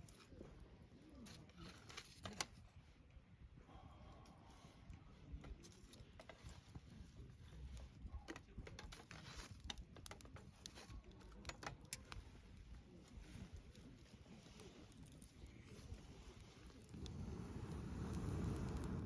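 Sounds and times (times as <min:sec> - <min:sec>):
campfire crackling: 0:04.1 - 0:19.0.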